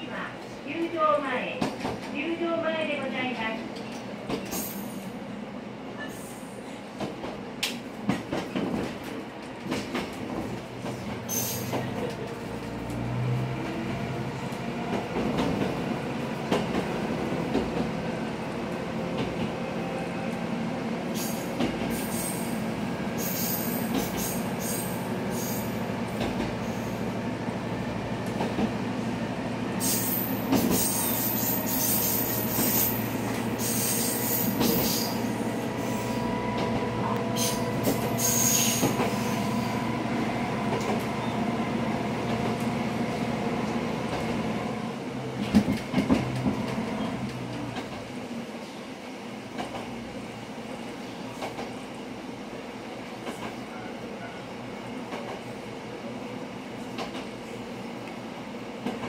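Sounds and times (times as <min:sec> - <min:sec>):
diesel railcar engine drone: 0:32.5 - 0:55.0.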